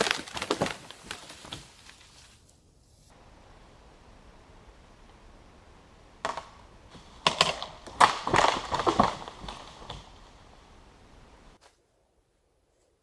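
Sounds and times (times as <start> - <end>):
wood cracking and snapping: 0.0 - 2.1, 6.2 - 10.2.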